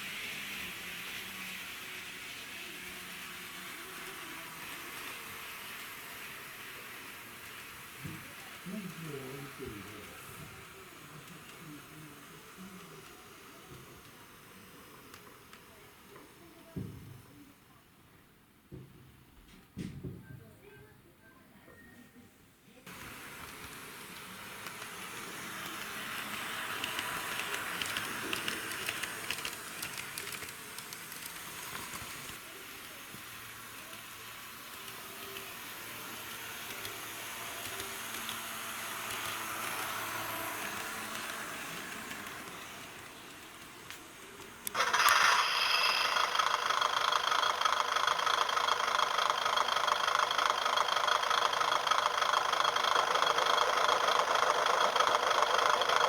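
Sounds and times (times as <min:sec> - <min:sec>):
model railcars rattling on track: 0:00.0 - 0:16.7, 0:22.8 - 0:56.0
diesel engine idling sound: 0:44.7 - 0:56.0.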